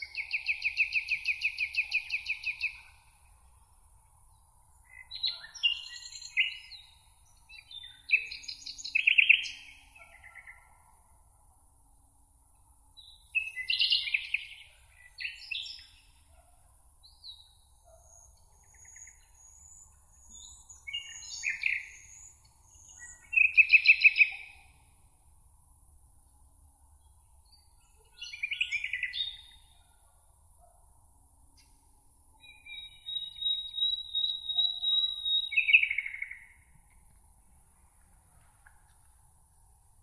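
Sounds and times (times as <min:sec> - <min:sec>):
songbirds singing: 0:00.0 - 0:03.2, 0:04.3 - 0:10.8, 0:13.0 - 0:16.4, 0:17.0 - 0:24.9, 0:27.0 - 0:30.0, 0:32.3 - 0:37.1
faint steady hiss: 0:35.0 - 0:40.0.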